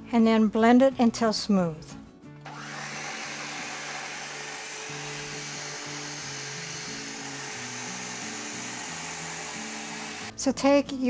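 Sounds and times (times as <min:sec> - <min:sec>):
background music: 0:00.0 - 0:11.0
blender motor running: 0:02.5 - 0:10.3.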